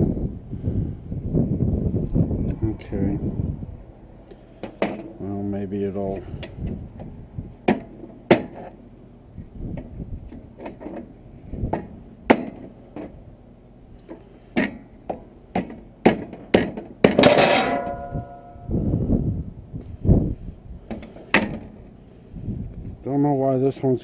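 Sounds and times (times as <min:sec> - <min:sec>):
ringing metal scraping: 0:17.2 - 0:19.0.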